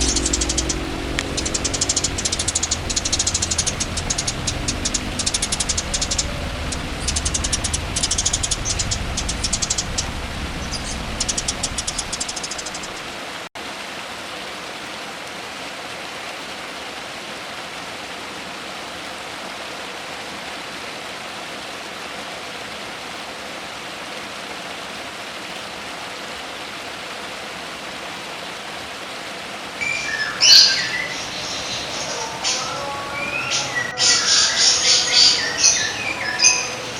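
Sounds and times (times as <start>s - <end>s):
songbird chirping: 0.0s - 13.2s, 29.8s - 36.9s
steady hiss: 0.0s - 13.5s.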